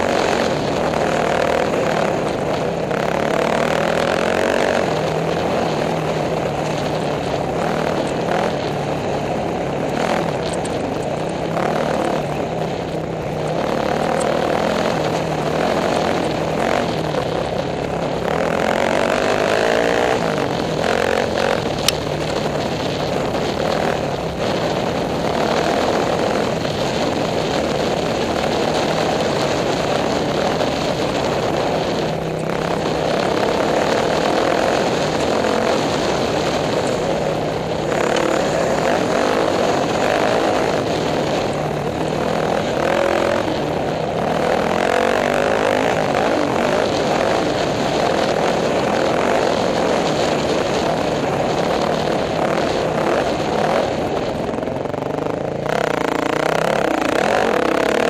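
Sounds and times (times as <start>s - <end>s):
off-road motorcycle engine running hard: 0.0s - 58.0s.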